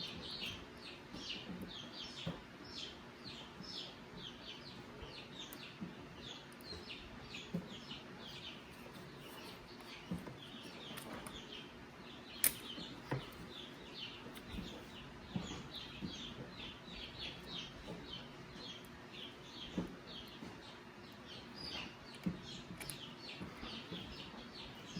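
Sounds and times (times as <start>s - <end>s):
small birds chirping: 0.0s - 24.9s
clicks and knocks of handling: 12.4s - 13.7s, 21.8s - 24.3s.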